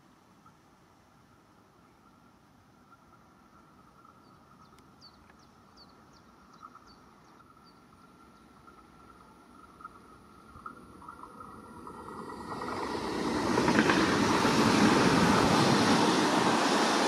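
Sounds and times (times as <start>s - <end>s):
small bird chirping: 2.9s - 12.0s
approaching train rumble: 5.8s - 17.0s.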